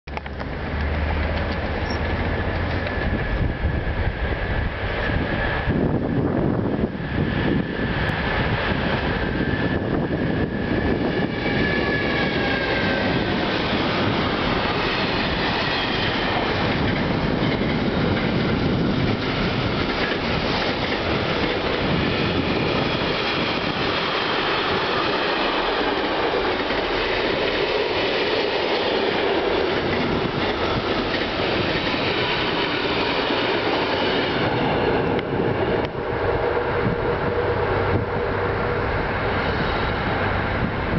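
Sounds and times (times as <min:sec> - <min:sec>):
diesel locomotive engine running: 0:00.1 - 0:40.9
high-pitched wheel squealing: 0:08.8 - 0:14.0.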